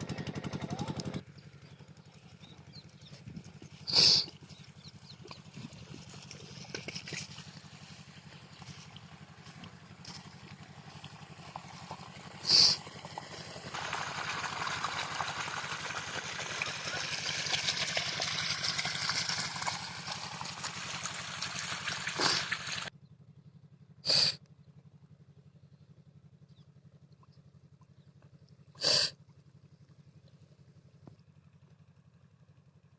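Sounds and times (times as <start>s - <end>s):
diesel pump engine running: 0.0s - 32.9s
water gushing from pump: 3.0s - 22.9s.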